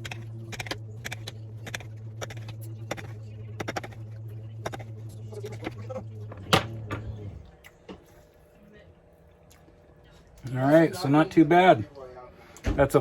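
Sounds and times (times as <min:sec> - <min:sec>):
low hum: 0:00.0 - 0:10.5.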